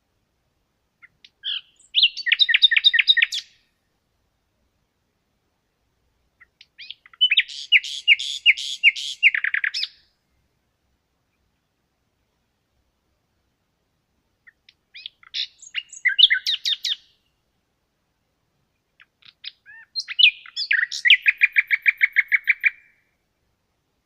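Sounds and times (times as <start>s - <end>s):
songbird whistling: 1.4s - 3.6s, 6.8s - 10.0s, 15.0s - 17.2s, 19.4s - 23.0s.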